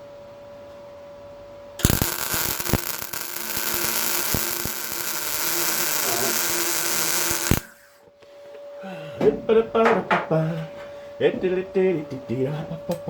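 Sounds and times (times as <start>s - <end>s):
welder arc crackling with pops: 1.8s - 7.8s.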